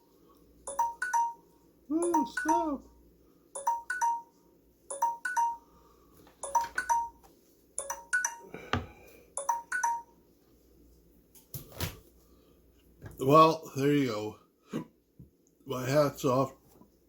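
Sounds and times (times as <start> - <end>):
timer alarm beeping: 0.7 - 2.8, 3.6 - 5.7.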